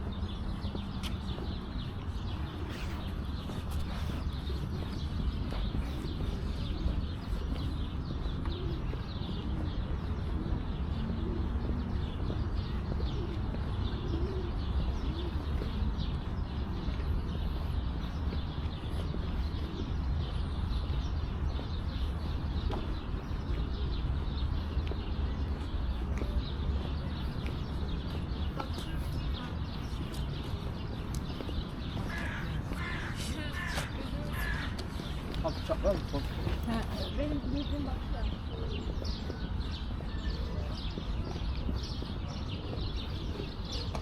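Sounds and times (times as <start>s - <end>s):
small birds chirping: 0.0s - 44.0s
pigeons cooing: 2.2s - 20.4s.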